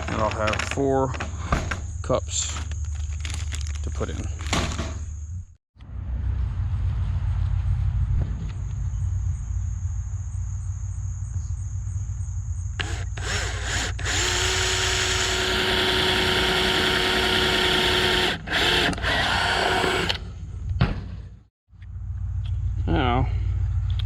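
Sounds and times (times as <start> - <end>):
power drill boring plastic: 12.8 - 20.2.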